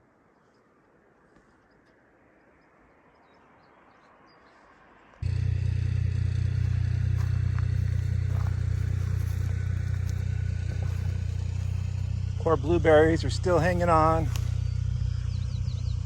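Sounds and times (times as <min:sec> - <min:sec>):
soft bird chirps: 0:00.0 - 0:05.2, 0:13.2 - 0:16.0
low motor drone: 0:05.2 - 0:16.0.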